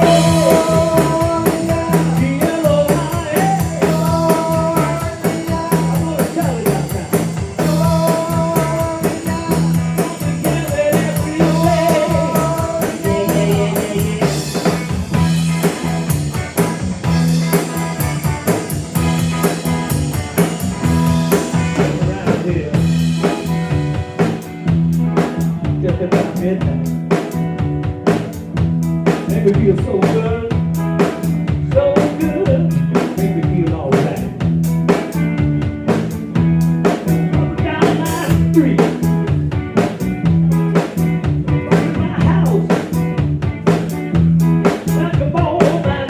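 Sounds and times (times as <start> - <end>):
repeating bass figure: 0.0 - 27.8
live rock band playing: 0.0 - 46.0
steady drum beats: 0.0 - 46.0.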